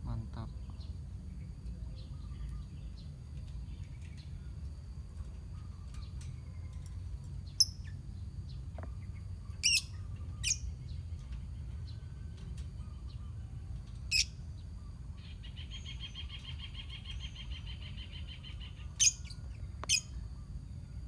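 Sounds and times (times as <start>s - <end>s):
lovebirds chirping: 7.5s - 12.0s, 14.0s - 20.5s
shrill bird calls: 9.6s - 10.7s, 15.2s - 20.2s.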